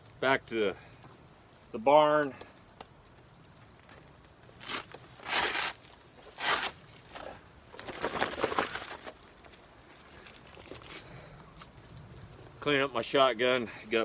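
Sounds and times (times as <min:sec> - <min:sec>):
footsteps crunching in snow: 0:04.6 - 0:09.6.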